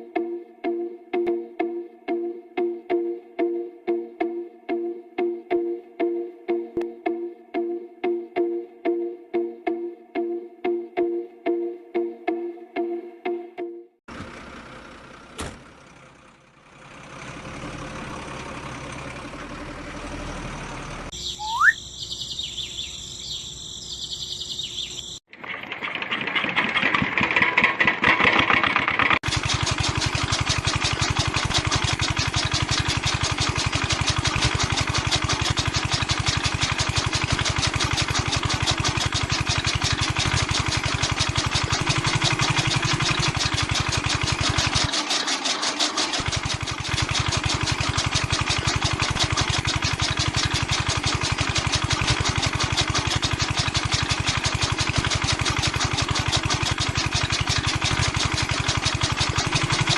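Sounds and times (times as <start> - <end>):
diesel engine running: 14.1 - 25.2, 26.2 - 59.9.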